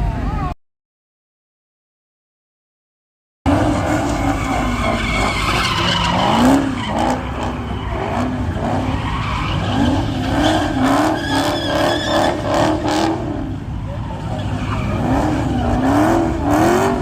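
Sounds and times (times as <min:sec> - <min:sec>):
car engine revving: 0:03.5 - 0:17.0
tyres skidding on wet road: 0:03.5 - 0:17.0.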